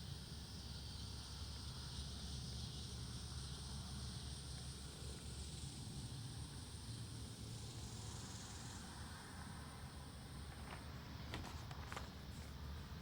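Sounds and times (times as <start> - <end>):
faint even hiss: 0.0 - 13.0.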